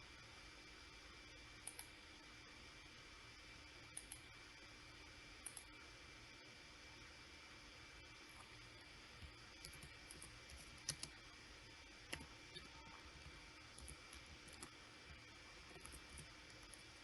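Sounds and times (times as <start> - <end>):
quiet room hum: 0.0 - 17.0
mouse and keyboard clicks: 9.6 - 11.2.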